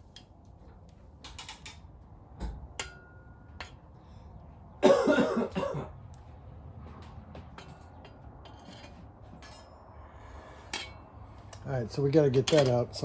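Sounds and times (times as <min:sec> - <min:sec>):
parts clicking and knocking: 0:00.0 - 0:04.0, 0:06.9 - 0:09.9, 0:10.6 - 0:13.0
person coughing: 0:04.8 - 0:06.0.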